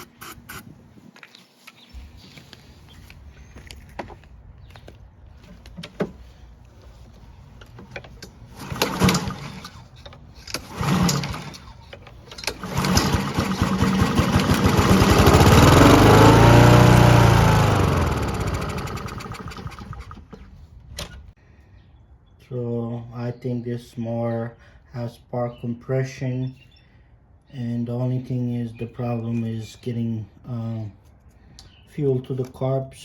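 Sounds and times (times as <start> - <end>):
lawn mower engine running: 5.4 - 20.5
pull starter cord: 7.6 - 21.2.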